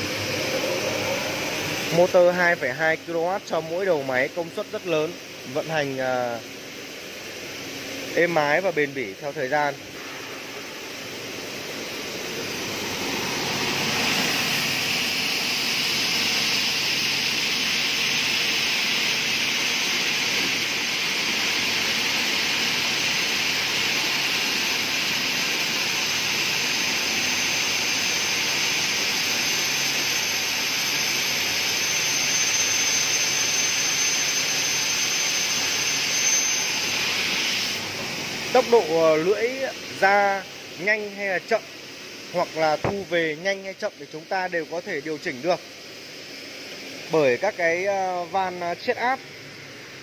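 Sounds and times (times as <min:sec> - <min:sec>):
saw blades whirring: 0:00.0 - 0:05.1, 0:42.4 - 0:43.7.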